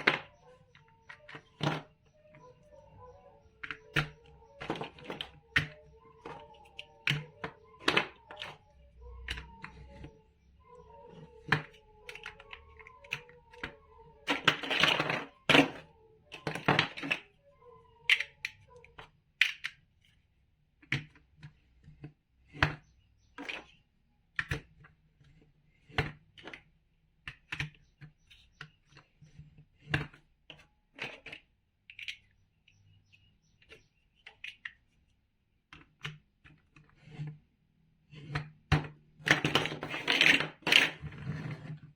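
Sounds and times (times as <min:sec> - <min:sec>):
plastic blocks clicking together: 0:03.5 - 0:10.1, 0:11.1 - 0:19.9, 0:29.8 - 0:32.4, 0:38.2 - 0:41.6.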